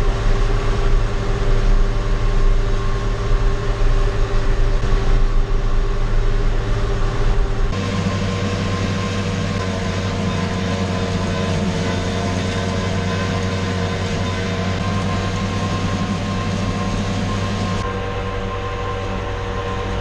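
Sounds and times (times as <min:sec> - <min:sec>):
farm machinery engine drone: 0:00.0 - 0:20.0
steady whining tones: 0:00.0 - 0:20.0.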